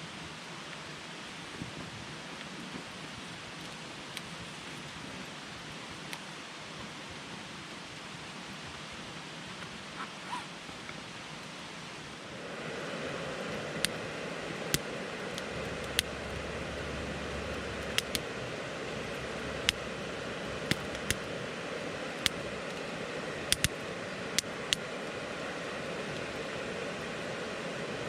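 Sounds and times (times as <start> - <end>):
campfire hissing: 0.0 - 28.0
fire crackles and pops: 13.7 - 14.0, 14.6 - 27.1.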